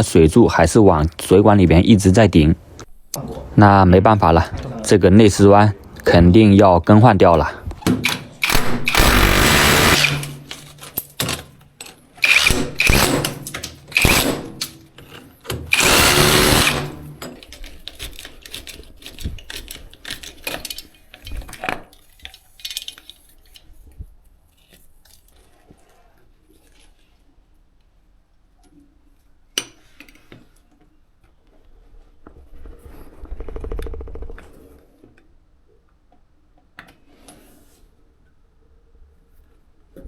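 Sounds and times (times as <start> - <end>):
electric power tool running: 8.4 - 10.4, 15.7 - 17.0.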